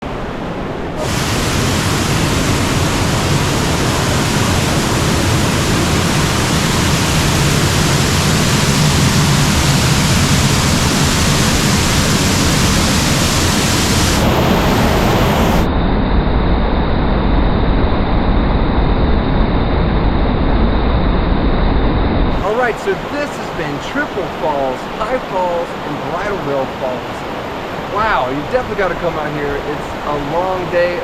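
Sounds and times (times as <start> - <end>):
waterfall rushing: 1.0 - 15.7, 22.3 - 31.0.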